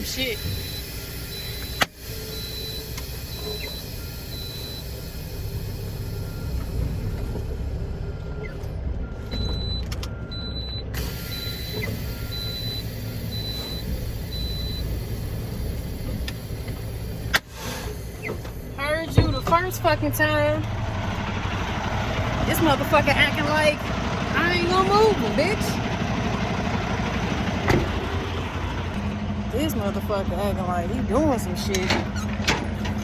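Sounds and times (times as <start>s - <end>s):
electronic warning beeps: 0.0s - 6.8s, 8.2s - 16.1s, 18.8s - 19.9s
diesel truck engine running: 0.0s - 33.0s.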